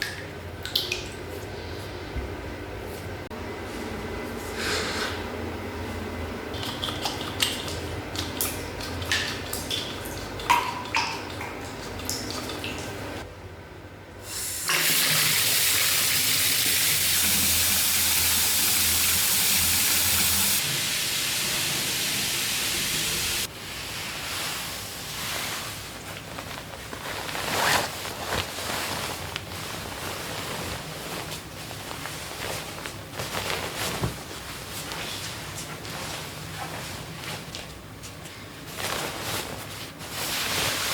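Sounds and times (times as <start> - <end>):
bath tap water gushing: 6.6 - 13.2, 14.4 - 23.5.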